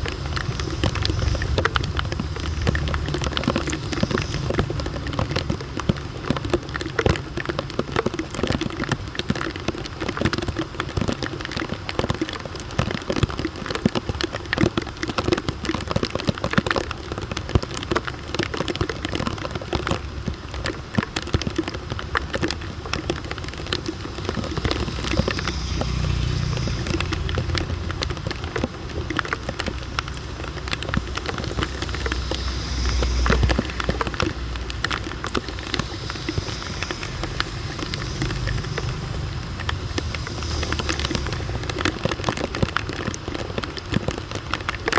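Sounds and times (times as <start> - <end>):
low rumble: 0.0 - 7.0, 21.9 - 43.9
heavy rain on hard surface: 0.0 - 44.9.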